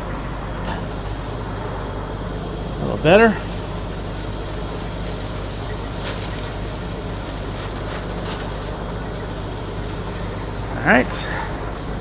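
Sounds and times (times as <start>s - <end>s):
low engine hum: 0.0s - 12.0s
scraping and brushing: 3.2s - 12.0s.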